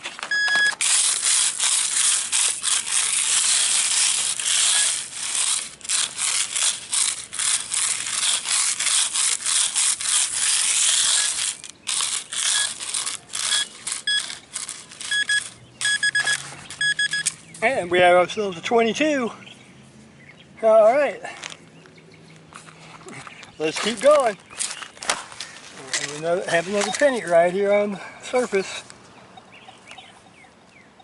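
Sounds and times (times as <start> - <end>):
hand digger scraping soil: 0.0 - 17.9, 22.5 - 27.7
short high electronic beeps: 0.3 - 0.8, 13.4 - 14.4, 15.0 - 17.4.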